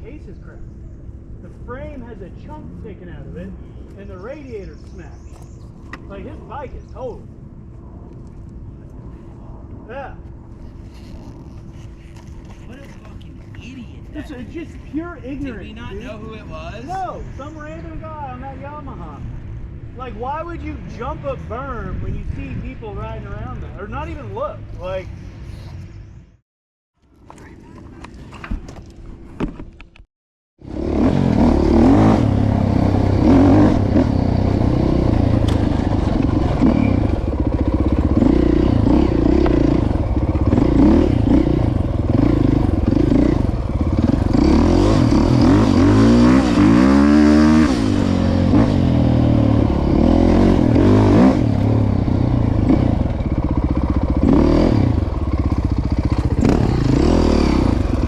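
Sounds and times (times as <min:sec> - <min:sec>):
vehicle engine running: 0:30.6 - 0:58.0.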